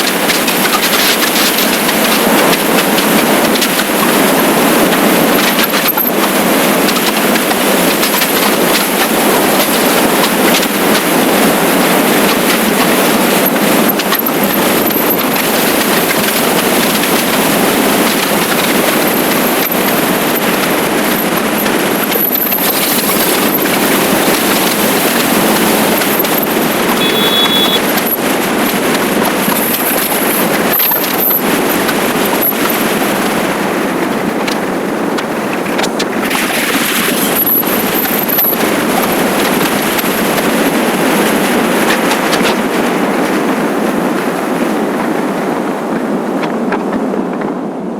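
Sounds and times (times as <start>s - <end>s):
motorcycle road noise at speed: 0.0s - 47.9s
wind rush: 0.0s - 47.9s
brief high tone: 26.9s - 27.8s.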